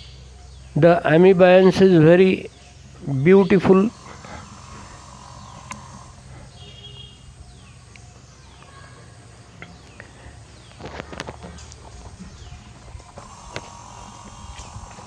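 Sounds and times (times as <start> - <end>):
low steady hum: 0.0 - 15.0
downward-sliding bird calls: 1.5 - 7.7, 9.9 - 15.0
whistled bird calls: 2.4 - 9.0
faint clicks: 5.4 - 6.0.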